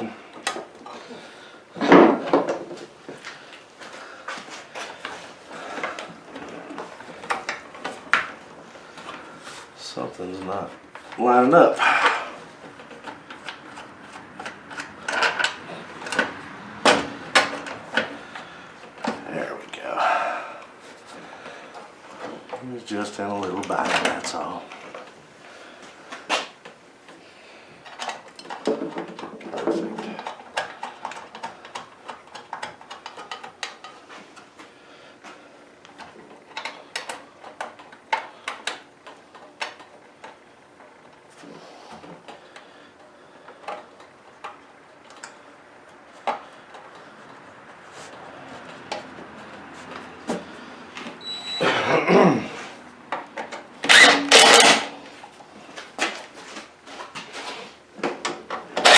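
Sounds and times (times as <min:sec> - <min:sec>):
hand tools and metal parts clicking: 0:11.8 - 0:16.6, 0:53.1 - 0:55.4, 0:58.2 - 0:58.9
metal clattering: 0:53.9 - 0:55.0.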